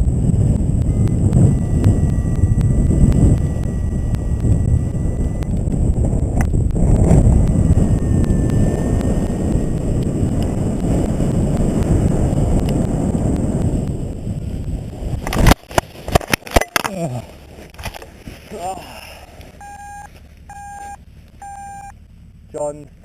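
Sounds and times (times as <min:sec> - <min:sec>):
wind buffeting microphone: 0:00.0 - 0:16.6.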